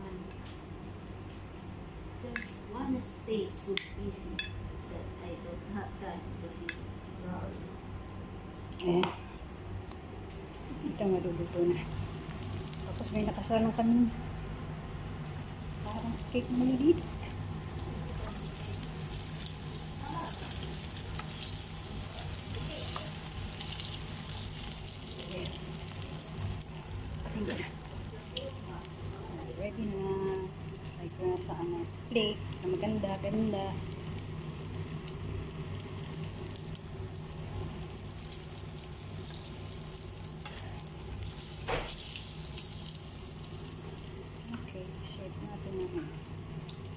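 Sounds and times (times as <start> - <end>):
food sizzling in hot oil: 11.5 - 46.9.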